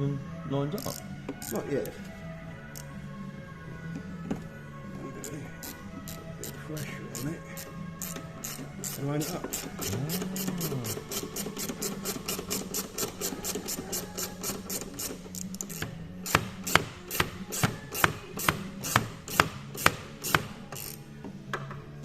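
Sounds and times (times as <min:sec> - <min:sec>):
ratchet wrench clicking: 0:00.8 - 0:01.6, 0:05.2 - 0:21.1.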